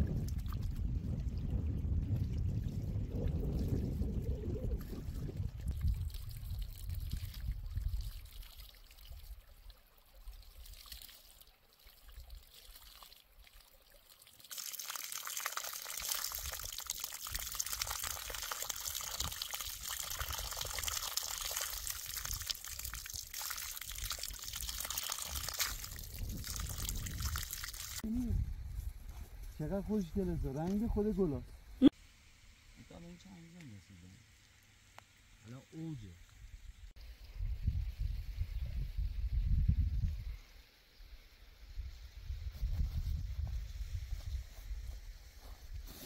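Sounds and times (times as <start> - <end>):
water pouring and splashing: 0.0 - 28.1.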